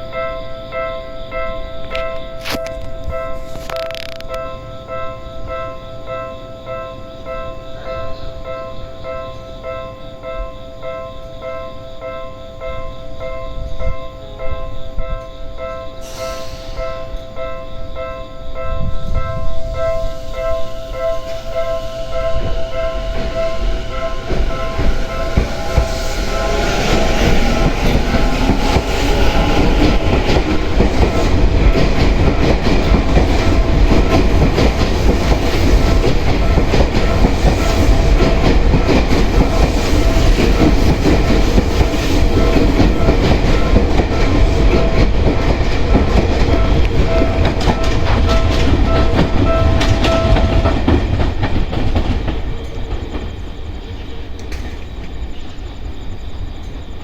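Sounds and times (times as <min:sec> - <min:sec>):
train rumble: 0:12.9 - 0:57.0
electric train motor whine: 0:19.7 - 0:45.2
wheels clacking over rail joints: 0:22.6 - 0:55.2.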